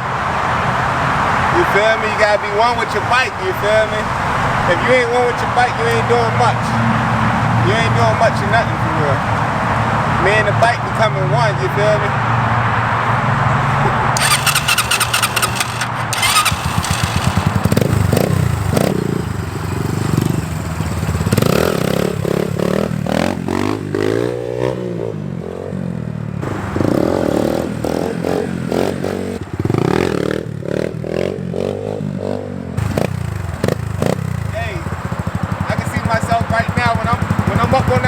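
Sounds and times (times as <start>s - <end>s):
motorbike engine revving: 13.5s - 25.8s, 26.4s - 38.0s.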